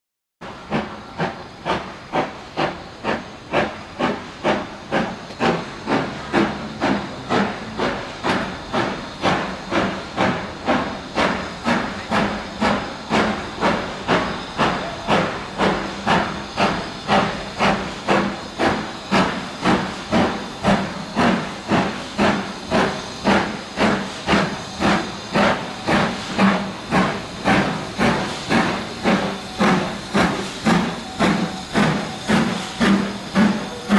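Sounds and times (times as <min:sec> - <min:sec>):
steam locomotive chuffing: 0:00.4 - 0:33.9.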